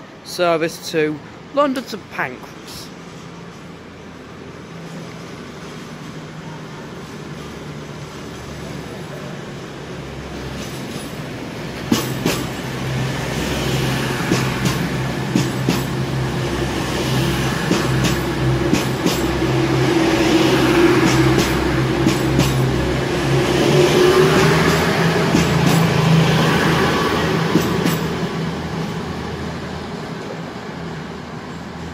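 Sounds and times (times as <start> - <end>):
diesel train engine drone: 0.0 - 31.9
wheels clicking over rail joints: 24.4 - 26.1.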